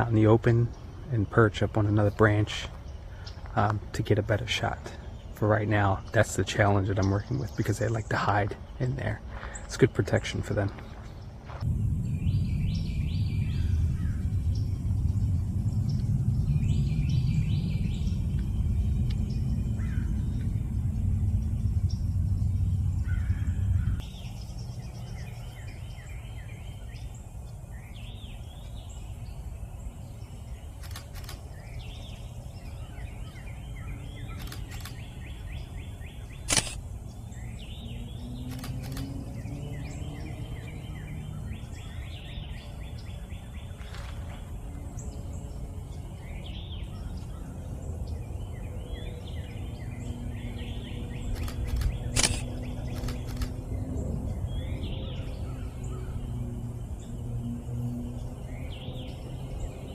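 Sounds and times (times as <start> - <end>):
low outdoor rumble: 0.0 - 59.9
songbirds singing: 0.0 - 59.9
sharp click: 34.4 - 35.0, 36.4 - 36.8, 51.4 - 53.5.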